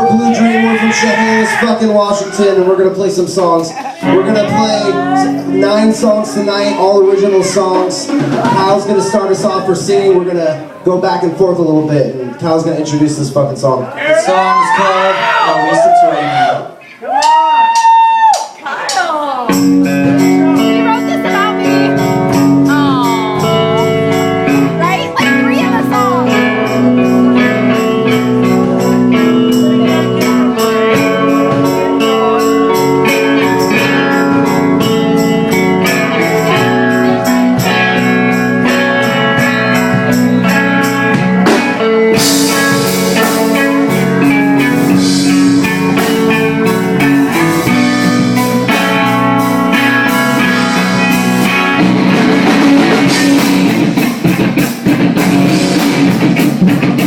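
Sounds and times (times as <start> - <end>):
electric guitar: 0.0 - 12.4, 14.1 - 57.0
drum kit with cymbals: 7.2 - 9.2, 19.4 - 57.0.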